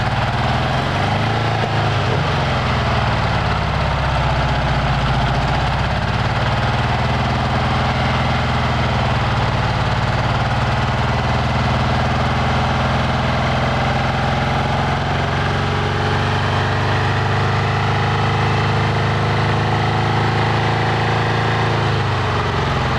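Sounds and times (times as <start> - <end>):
car engine idling: 0.0 - 15.5.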